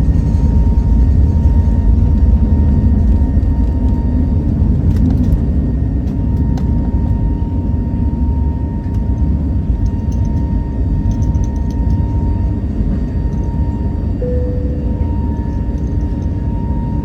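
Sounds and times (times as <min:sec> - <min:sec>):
low rumble of aircraft cabin: 0:00.0 - 0:17.0
thin steady tone: 0:13.3 - 0:17.0.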